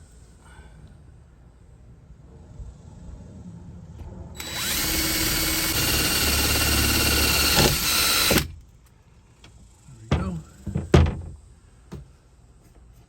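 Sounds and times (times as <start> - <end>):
power drill driving into wood: 4.4 - 8.5.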